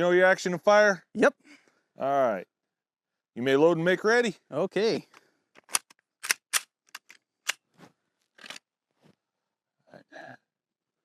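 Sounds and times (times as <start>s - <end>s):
gun handling noises: 5.0s - 8.7s
pistol metallic clicks: 5.6s - 7.6s.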